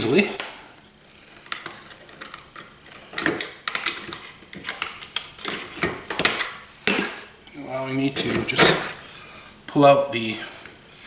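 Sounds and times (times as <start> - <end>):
metal parts clicking and scraping: 8.2 - 9.0.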